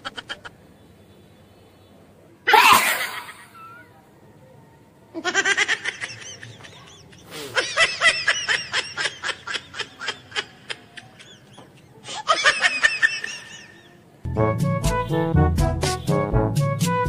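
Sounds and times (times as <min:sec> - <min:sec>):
high-pitched laughter: 0:02.5 - 0:04.0.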